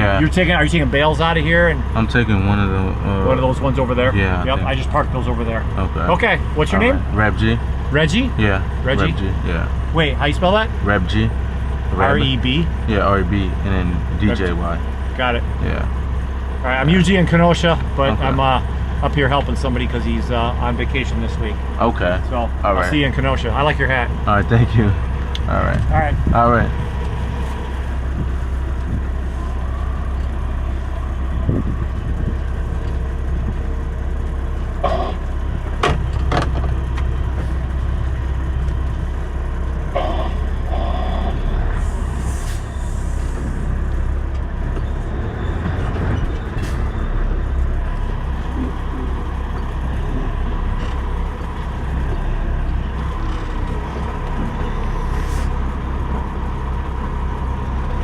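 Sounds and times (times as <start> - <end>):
diesel truck engine running: 0.0 - 58.0
short air hiss: 41.9 - 43.4.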